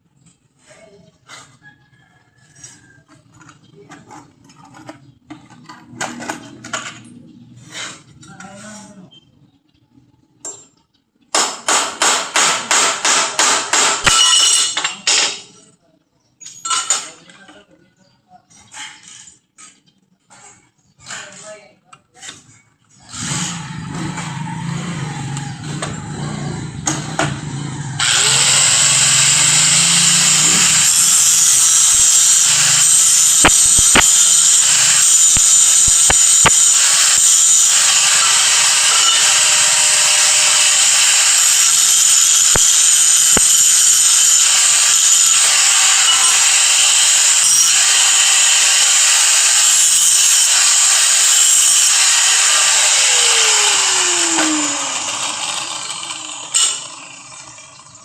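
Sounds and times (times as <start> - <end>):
power tool grinding: 22.3 - 58.0.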